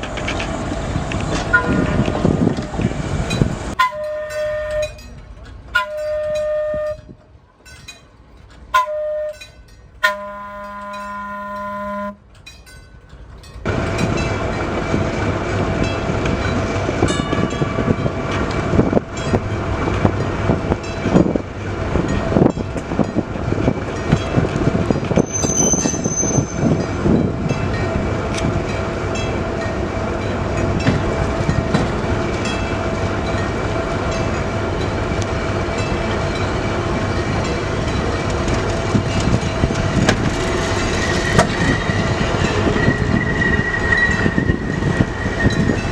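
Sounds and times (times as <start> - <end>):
train rumble and rail noise: 0.0 - 45.9
wheels clicking over rail joints: 0.0 - 45.9
train horn blasts: 1.5 - 1.9, 3.8 - 5.2, 5.8 - 7.2, 8.7 - 12.3.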